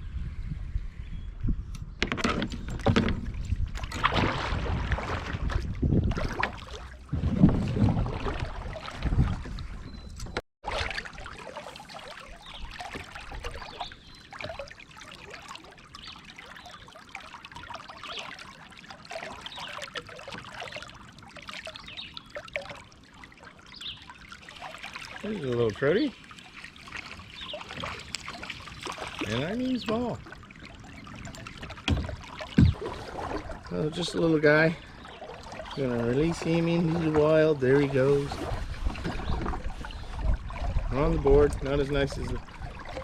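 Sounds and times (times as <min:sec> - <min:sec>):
kayak hull and paddle knocking: 0:02.0 - 0:11.0, 0:31.2 - 0:43.0
river water trickling: 0:02.6 - 0:43.0.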